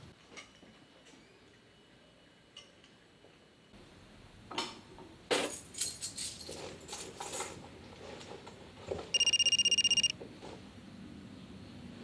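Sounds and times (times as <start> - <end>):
mobile phone ringing: 9.2 - 10.1.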